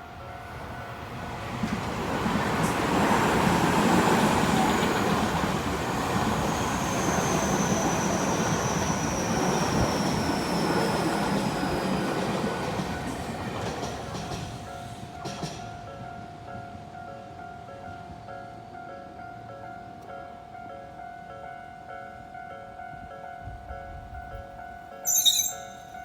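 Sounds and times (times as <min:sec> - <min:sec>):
train rumble and clatter: 0:00.0 - 0:18.6
level crossing warning bell: 0:00.0 - 0:26.0.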